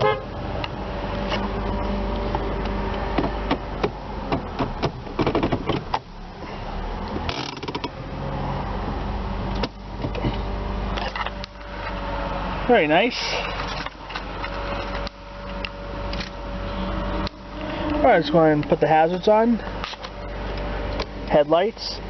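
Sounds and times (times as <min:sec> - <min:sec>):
car engine idling: 0:00.0 - 0:22.0
clicks and knocks inside car: 0:03.1 - 0:06.1.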